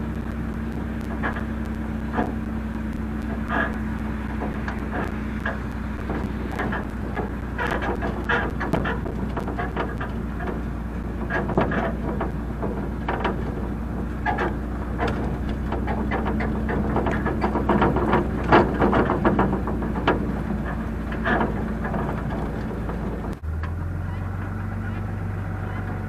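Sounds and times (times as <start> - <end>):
clanks and rattles: 0.0 - 26.0
vehicle engine humming: 0.0 - 26.0.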